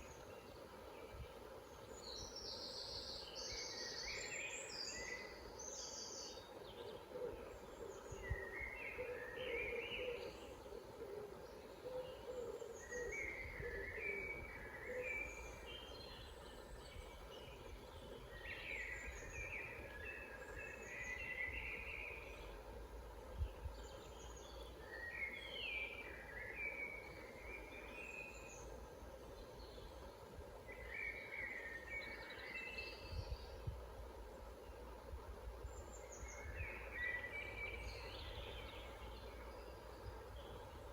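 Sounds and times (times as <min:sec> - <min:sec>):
lower warbling birdsong: 0:00.0 - 0:40.9
songbirds chirping: 0:00.0 - 0:40.9.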